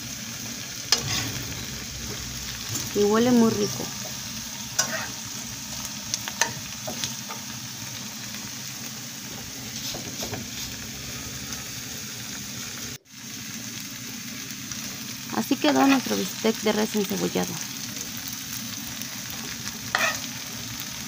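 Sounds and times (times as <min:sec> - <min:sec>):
steaks and onions sizzling: 0:00.0 - 0:21.0.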